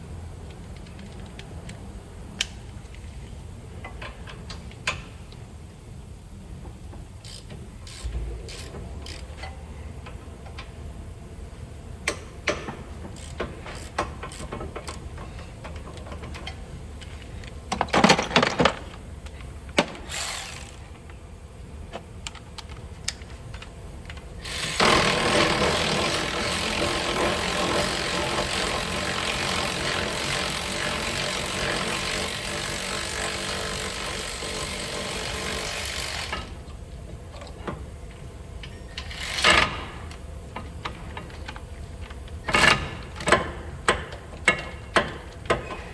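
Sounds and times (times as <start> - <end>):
power tool running: 20.0 - 20.9, 24.4 - 36.6.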